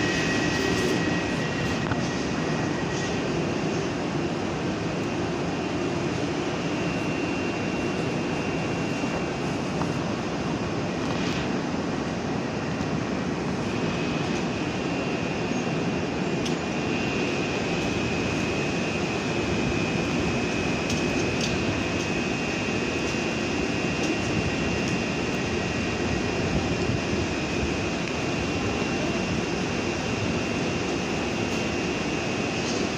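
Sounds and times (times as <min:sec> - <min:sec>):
high thin whine: 0:00.0 - 0:12.7
electric train machinery noise: 0:00.0 - 0:32.9.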